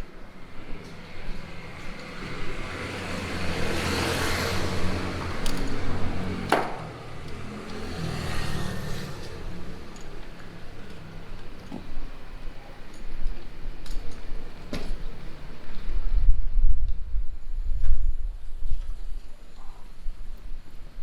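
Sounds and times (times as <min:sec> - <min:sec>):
light vehicle hum: 0:00.0 - 0:13.5
car passing by: 0:00.5 - 0:11.4.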